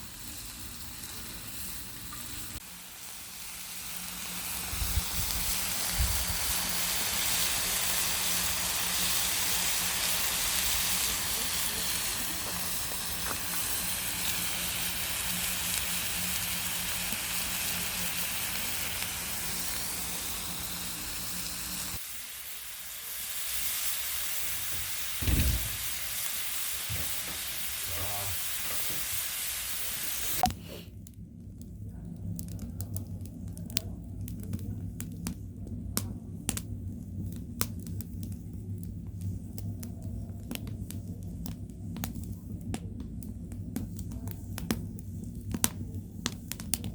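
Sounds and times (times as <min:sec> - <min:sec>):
meat sizzling: 0:00.0 - 0:30.5
firewood crackling and popping: 0:00.5 - 0:22.3, 0:30.4 - 0:46.9.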